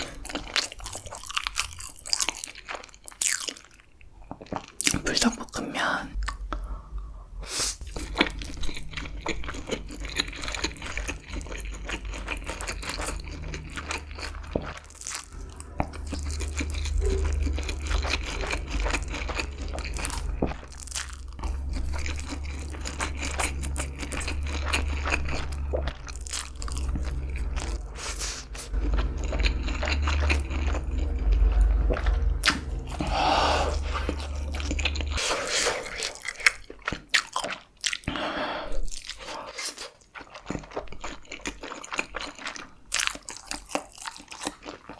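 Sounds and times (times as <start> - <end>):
crunching and chewing food: 0.0 - 5.6, 7.8 - 44.9
steady low hum: 6.1 - 36.2.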